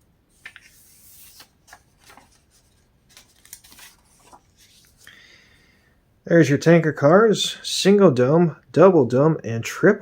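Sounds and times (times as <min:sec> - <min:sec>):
paper pages rustling: 0:00.3 - 0:05.1.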